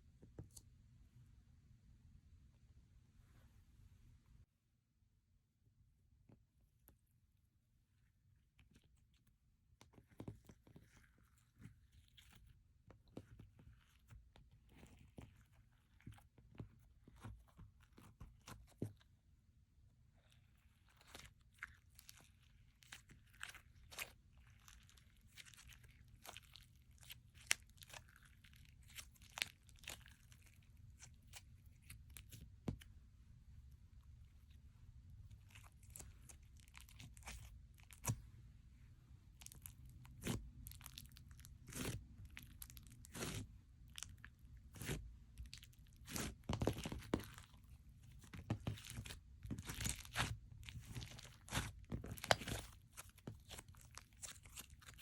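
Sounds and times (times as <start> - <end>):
slime clicking and crackling: 39.4 - 55.0.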